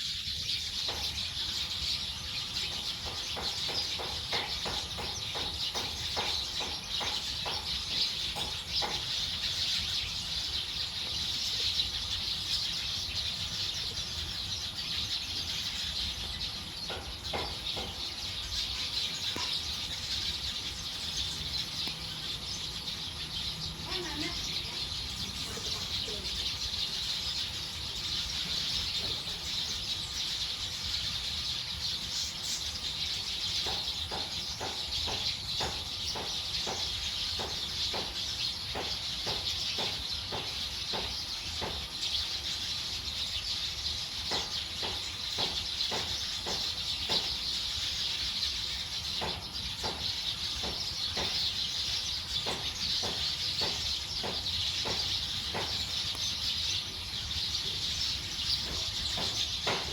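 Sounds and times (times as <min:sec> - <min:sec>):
chorus of birds chattering: 0:00.0 - 0:59.9.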